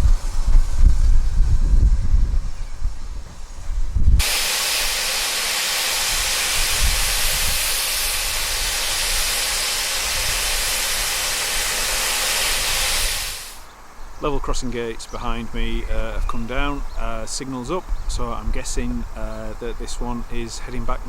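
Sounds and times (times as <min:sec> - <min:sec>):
loud steam hiss: 0:00.0 - 0:13.6.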